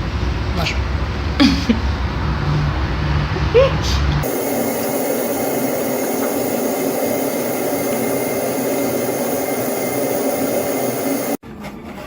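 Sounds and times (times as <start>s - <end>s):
low hum: 4.2s - 11.4s.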